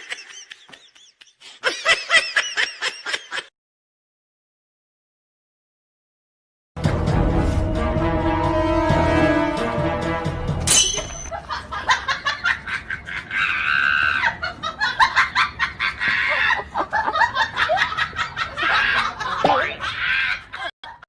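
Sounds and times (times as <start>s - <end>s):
person laughing: 0.0s - 3.5s, 11.3s - 21.0s.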